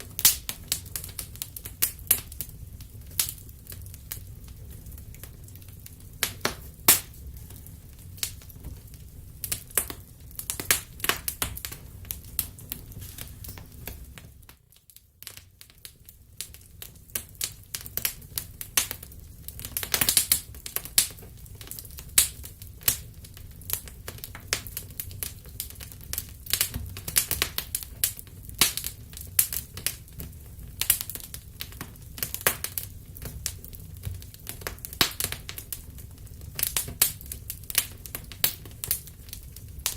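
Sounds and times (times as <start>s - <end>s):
wood fire crackling: 0.0s - 39.9s
sharp pops and snaps: 6.2s - 7.2s.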